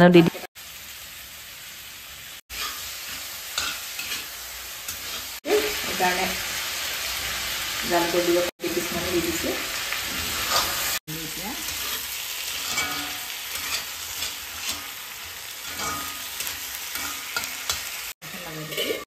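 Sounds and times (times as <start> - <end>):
food sizzling in hot oil: 0.4 - 19.0
steel spatula scraping: 2.5 - 6.2, 10.0 - 11.0, 11.6 - 19.0.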